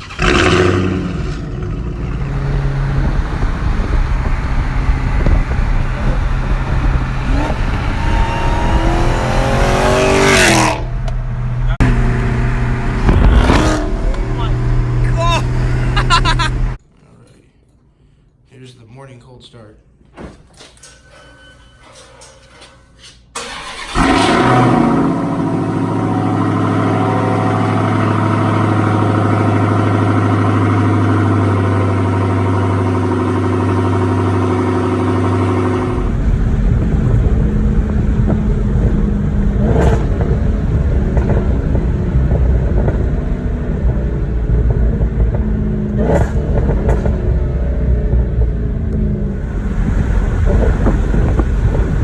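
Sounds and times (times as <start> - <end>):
car engine cold start: 0.0 - 10.7, 23.3 - 43.0, 49.0 - 52.0
exhaust cracks: 0.0 - 16.8, 21.8 - 52.0
car engine fast idle: 23.4 - 40.6, 49.2 - 52.0.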